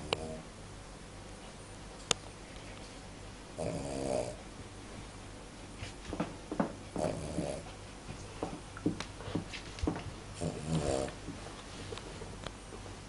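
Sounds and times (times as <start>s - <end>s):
dog snoring: 0.0s - 0.5s, 3.6s - 4.4s, 6.9s - 7.7s, 10.4s - 11.2s.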